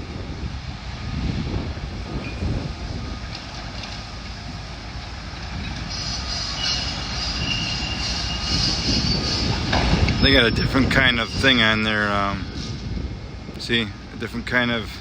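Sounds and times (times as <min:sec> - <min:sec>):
excavator rumbling and crunching: 0:02.0 - 0:11.7
high metallic squeal: 0:05.6 - 0:12.8.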